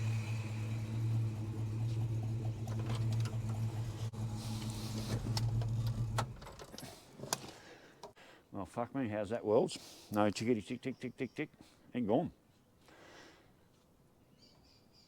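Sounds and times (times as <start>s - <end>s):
car engine idling rough: 0.0s - 6.7s.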